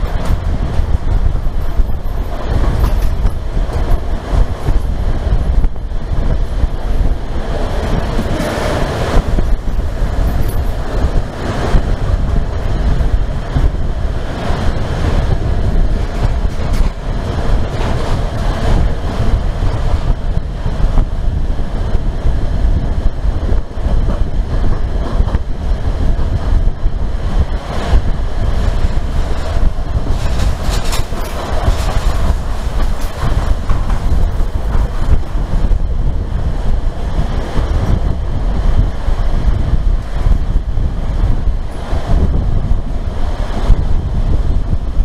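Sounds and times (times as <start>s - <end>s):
wheel clacks: 0.0s - 5.7s, 7.0s - 13.8s, 14.4s - 20.4s, 27.4s - 35.8s
train wheels rumbling on rail: 0.0s - 45.0s.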